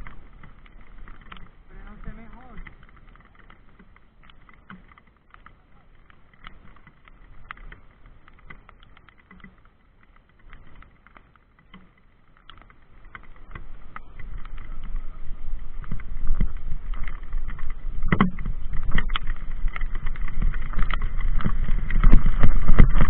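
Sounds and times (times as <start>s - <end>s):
light clicks and taps: 0.0s - 23.0s
low rumble: 13.3s - 23.0s.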